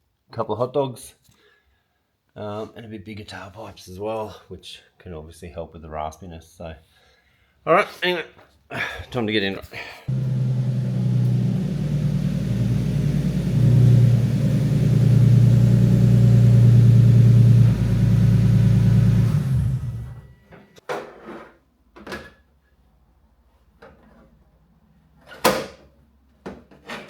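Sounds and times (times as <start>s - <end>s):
car engine droning: 10.1s - 20.4s.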